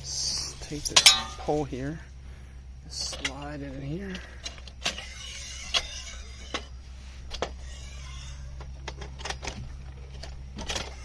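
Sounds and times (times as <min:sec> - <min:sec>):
metal pole scraping through frame: 0:00.6 - 0:01.7, 0:04.8 - 0:09.5
metal knocks and clinks: 0:00.9 - 0:01.6.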